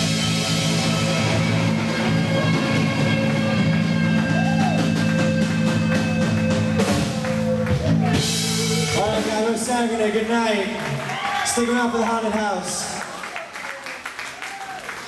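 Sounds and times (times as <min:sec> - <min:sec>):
drum strikes: 0:00.0 - 0:09.7
live rock band: 0:00.0 - 0:10.0.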